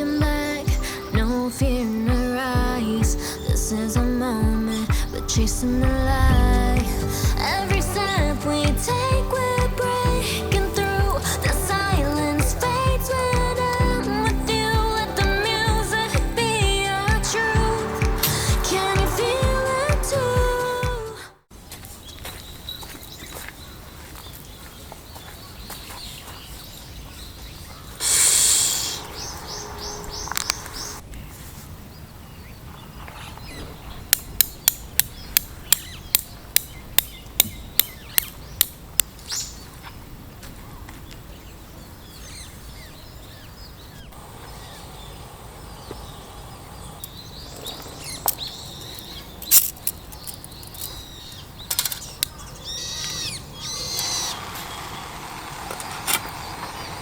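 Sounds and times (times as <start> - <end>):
birds calling: 22.1 - 31.3, 32.4 - 57.0.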